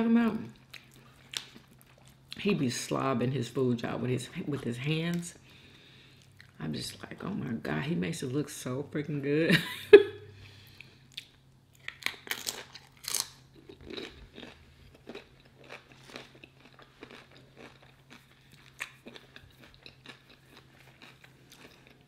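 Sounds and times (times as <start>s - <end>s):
tortilla chip crunching: 0.6s - 2.3s, 11.2s - 22.0s.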